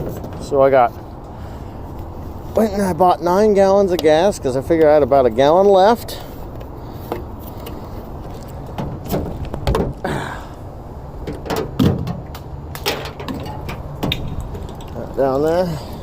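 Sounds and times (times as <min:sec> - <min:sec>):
knocks and clunks of handling: 0:00.0 - 0:00.6, 0:06.5 - 0:10.2, 0:11.2 - 0:15.6.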